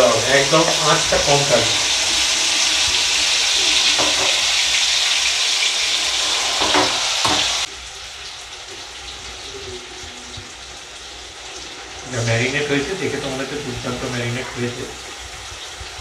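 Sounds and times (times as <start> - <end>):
room sound: 0.0 - 7.8
chicken sizzling in oil: 0.0 - 16.0.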